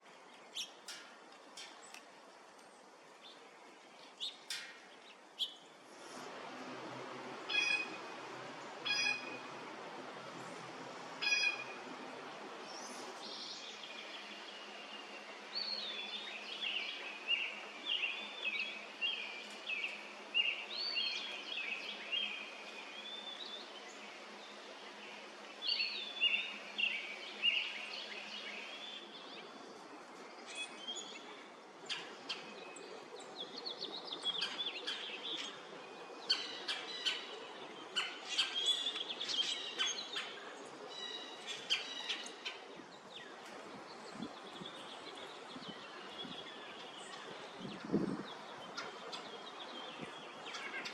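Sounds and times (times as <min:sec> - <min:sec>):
faint outdoor hiss: 0:00.0 - 0:50.9
songbirds warbling: 0:01.6 - 0:50.9.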